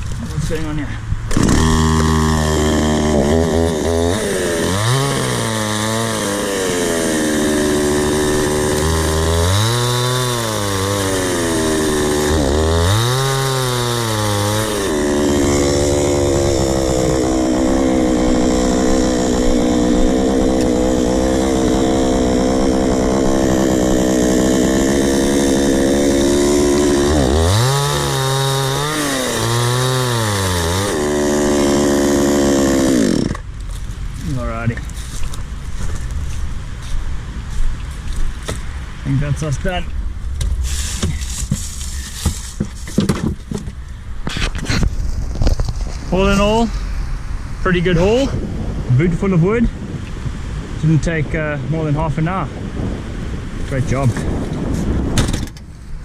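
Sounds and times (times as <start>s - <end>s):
chainsaw revving and cutting log: 1.3s - 33.5s.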